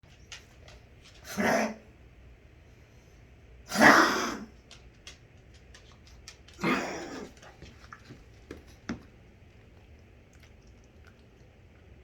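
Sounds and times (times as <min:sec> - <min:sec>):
dog coughing: 0:03.7 - 0:04.5, 0:06.6 - 0:07.4.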